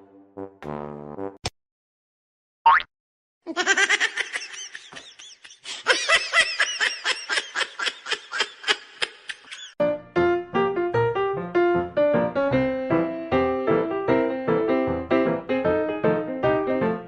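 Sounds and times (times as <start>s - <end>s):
hearty laughter: 3.5s - 9.8s.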